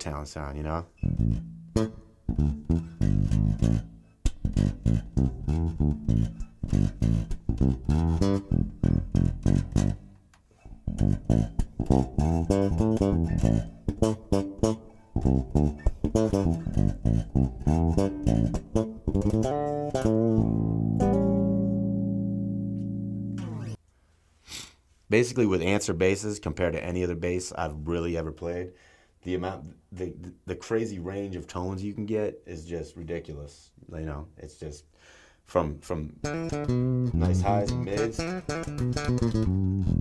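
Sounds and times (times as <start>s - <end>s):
electric bass guitar plucked: 0.9s - 23.8s, 36.0s - 40.0s.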